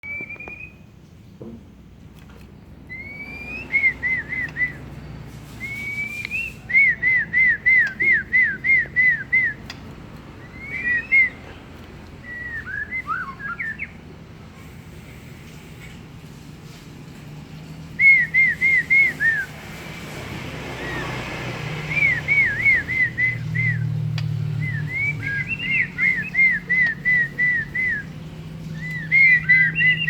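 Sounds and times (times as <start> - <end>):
person whistling: 2.9 - 4.8, 5.6 - 9.6, 21.9 - 23.9, 24.6 - 28.0, 28.8 - 30.0.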